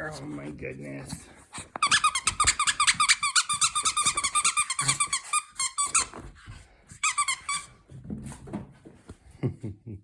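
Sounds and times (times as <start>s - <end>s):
dog toy squeaking: 1.6s - 6.3s, 7.0s - 7.8s.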